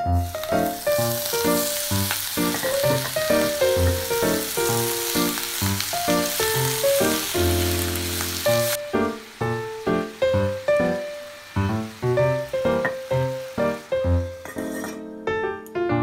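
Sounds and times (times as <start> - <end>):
vegetables sizzling in a saucepan: 0.0 - 15.0
background music: 0.0 - 16.0.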